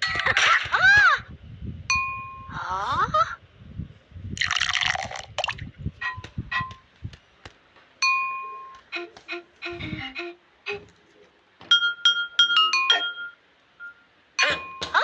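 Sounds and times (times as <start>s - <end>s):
pitched pings and chimes: 8.0s - 8.8s, 11.7s - 15.0s.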